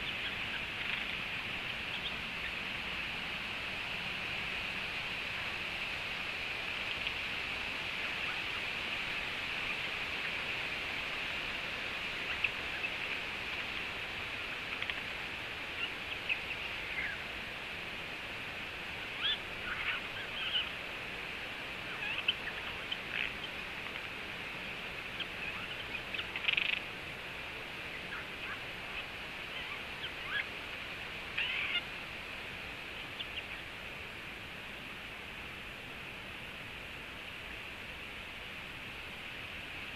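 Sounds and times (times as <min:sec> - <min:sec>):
bird chirping: 0:00.0 - 0:02.6
steady hiss: 0:00.0 - 0:39.9.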